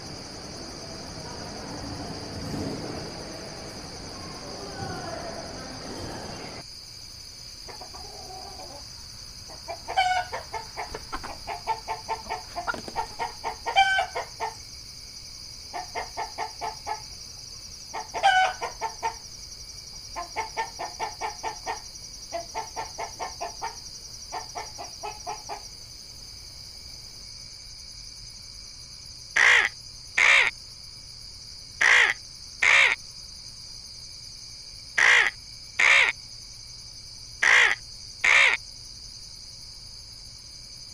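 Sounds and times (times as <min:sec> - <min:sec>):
guinea fowl rattling chatter calls: 0:09.9 - 0:14.6, 0:37.4 - 0:38.6
crow cawing: 0:29.4 - 0:30.5, 0:31.8 - 0:33.0, 0:35.0 - 0:36.2, 0:37.4 - 0:38.6.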